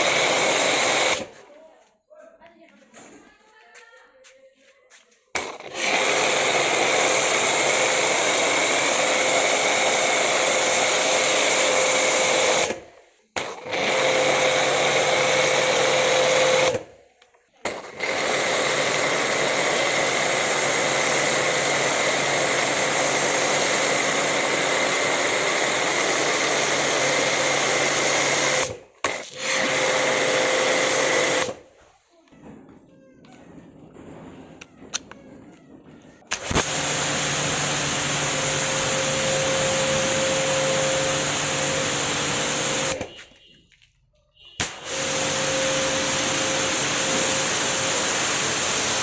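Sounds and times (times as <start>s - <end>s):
pressure washer motor whir: 0.0s - 1.5s, 5.4s - 12.8s, 13.4s - 16.9s, 17.6s - 31.6s, 36.3s - 43.2s, 44.6s - 49.0s
water jet hissing: 36.3s - 43.2s, 44.6s - 49.0s.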